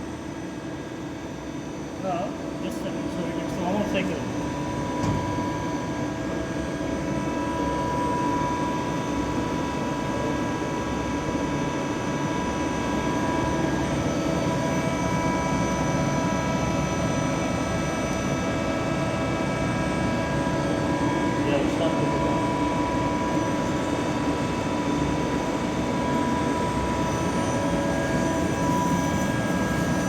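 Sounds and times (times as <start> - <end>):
whining spindle drive tones: 22.0 - 30.0.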